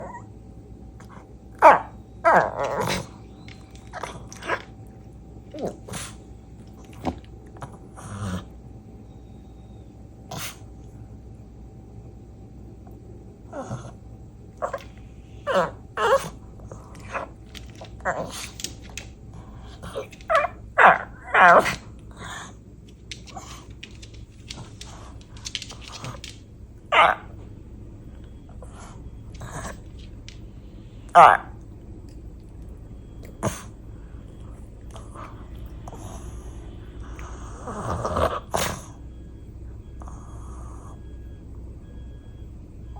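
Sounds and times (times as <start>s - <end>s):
dog whining and grumbling: 0.0s - 0.4s, 1.0s - 4.8s, 13.5s - 14.0s, 14.6s - 18.7s, 19.5s - 22.6s, 34.9s - 39.1s
dog making whiny vocal sounds: 1.6s - 3.2s, 14.6s - 17.3s, 19.6s - 22.6s.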